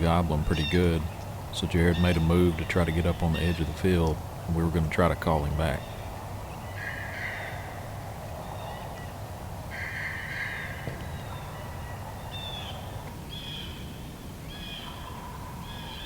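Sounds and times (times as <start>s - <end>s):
turkey gobbling: 0.0s - 6.0s.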